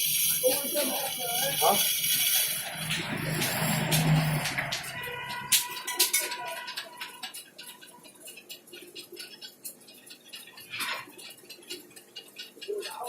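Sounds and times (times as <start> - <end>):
small hard objects clicking: 0.0 - 13.0.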